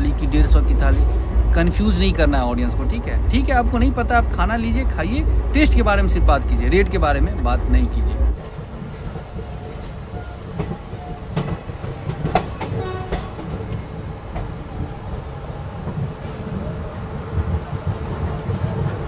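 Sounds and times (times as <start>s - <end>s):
train coaches rumbling: 0.0s - 19.0s
wheels clacking over rail joints: 8.4s - 15.0s.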